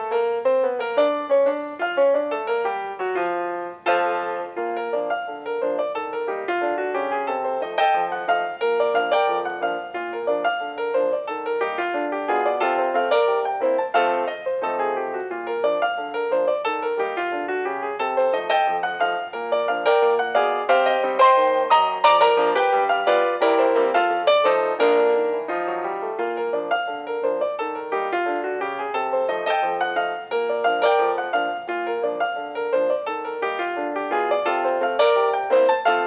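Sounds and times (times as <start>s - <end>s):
piano music: 0.0s - 36.0s.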